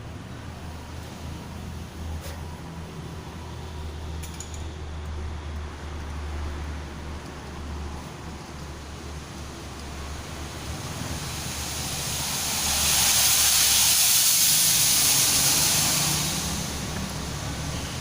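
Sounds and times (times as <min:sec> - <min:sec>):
long hiss: 0:10.2 - 0:18.0.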